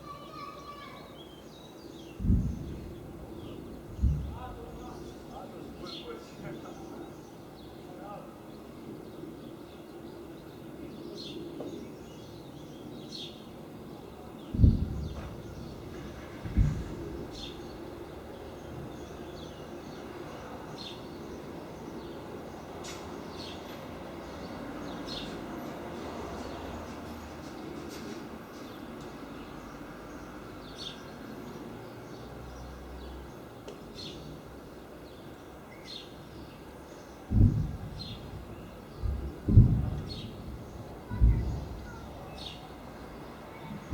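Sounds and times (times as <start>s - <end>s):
outdoor background hum: 0.0s - 43.9s
loud low thump: 2.2s - 5.1s, 14.5s - 18.0s, 37.3s - 43.1s.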